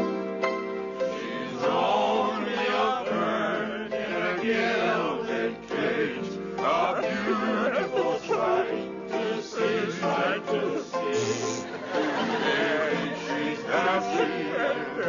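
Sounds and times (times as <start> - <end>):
piano chord: 0.0 - 3.2, 10.5 - 13.8
chorus of voices singing: 1.0 - 15.0.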